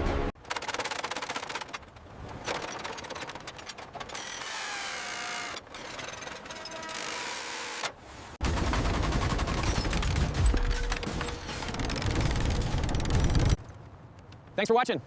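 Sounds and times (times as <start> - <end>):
mechanical whirring: 4.0 - 7.9, 9.7 - 13.6.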